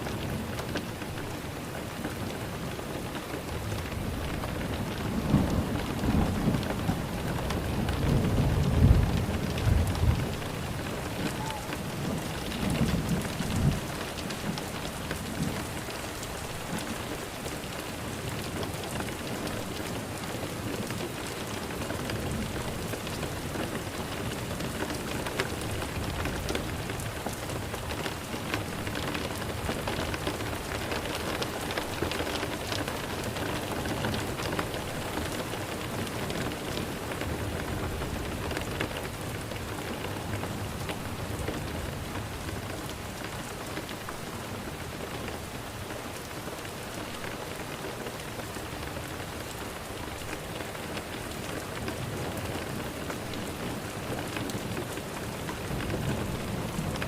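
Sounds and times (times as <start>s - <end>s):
steady rain hiss: 0.0s - 57.0s
raindrops ticking: 0.1s - 45.5s.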